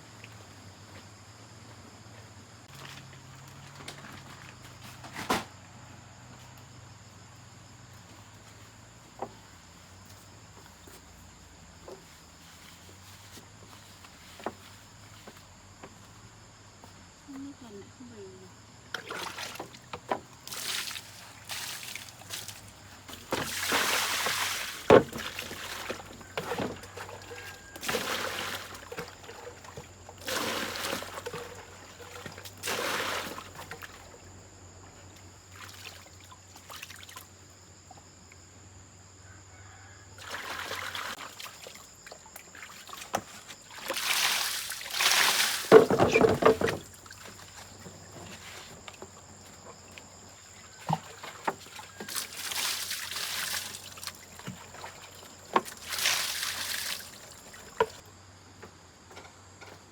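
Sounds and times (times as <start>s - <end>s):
water pouring and sloshing: 18.9s - 34.4s, 35.1s - 37.5s, 40.2s - 58.1s.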